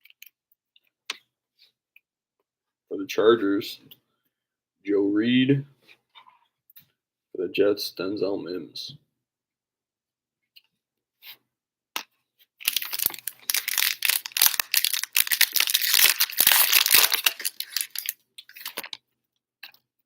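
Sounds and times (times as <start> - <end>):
card pack wrapper tearing and crinkling: 12.6 - 19.0.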